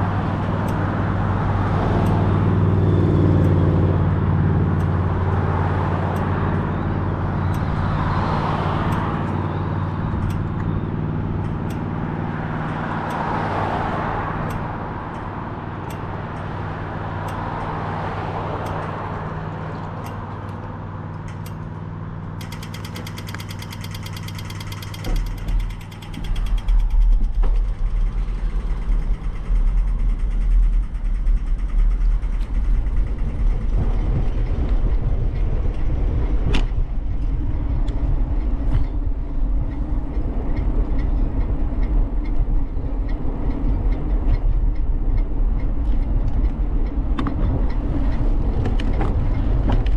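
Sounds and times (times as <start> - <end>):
cars passing: 0.0 - 49.9
wind buffeting microphone: 25.1 - 49.9.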